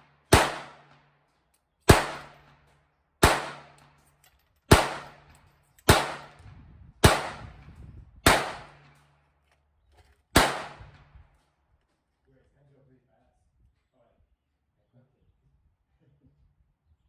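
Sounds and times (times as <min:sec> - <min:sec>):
handgun shots with echo: 0:00.3 - 0:00.9, 0:01.9 - 0:02.5, 0:03.2 - 0:03.9, 0:04.7 - 0:06.4, 0:07.0 - 0:07.6, 0:08.3 - 0:09.0, 0:10.4 - 0:11.0.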